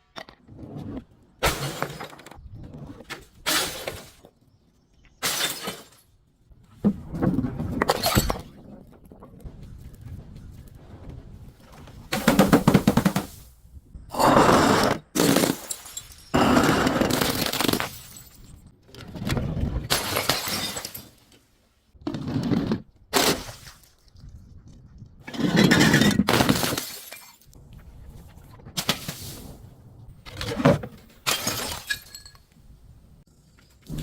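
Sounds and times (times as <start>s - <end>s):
glass shattering and crunching: 5.2s - 6.2s, 15.1s - 18.7s, 19.9s - 21.3s, 25.5s - 27.6s, 31.2s - 32.5s.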